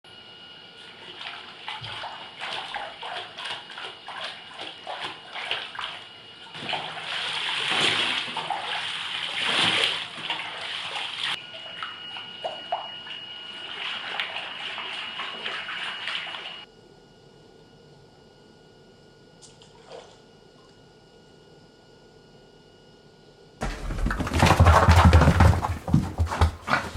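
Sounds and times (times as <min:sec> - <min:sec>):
bathwater splashing in a tub: 0:00.9 - 0:11.4, 0:13.6 - 0:16.6, 0:23.6 - 0:26.9
faint steady high tone: 0:11.4 - 0:19.4.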